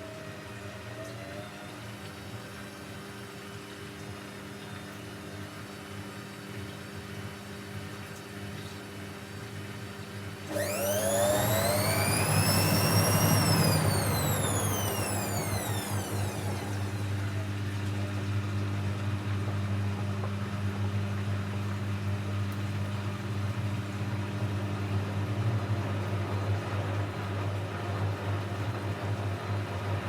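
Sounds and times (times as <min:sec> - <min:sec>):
drum motor whine: 0:10.5 - 0:17.8
washing machine humming: 0:10.5 - 0:20.3, 0:21.3 - 0:30.0.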